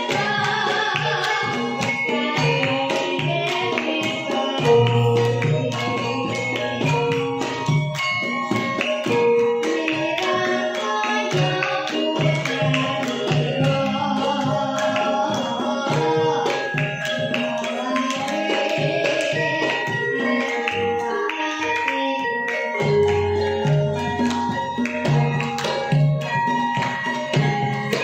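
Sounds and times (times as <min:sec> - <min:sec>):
girl singing: 0:00.0 - 0:06.8, 0:09.6 - 0:23.2
ringing pitched notes: 0:00.0 - 0:28.0.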